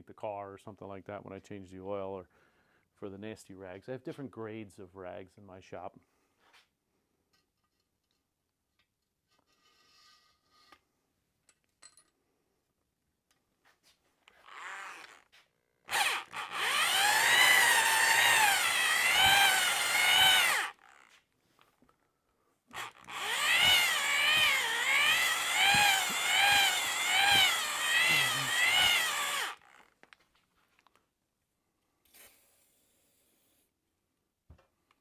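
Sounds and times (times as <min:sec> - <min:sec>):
electric drill whining: 0:14.4 - 0:15.3, 0:15.9 - 0:21.2, 0:22.7 - 0:29.9.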